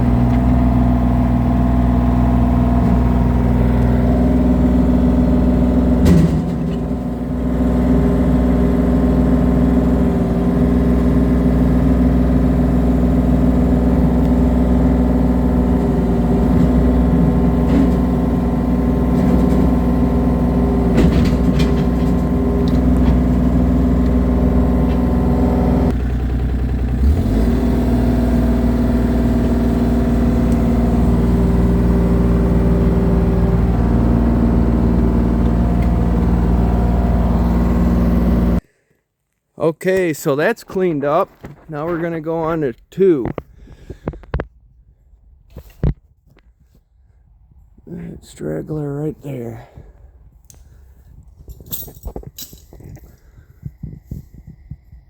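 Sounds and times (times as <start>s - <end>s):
work machinery engine running: 0.0s - 38.6s.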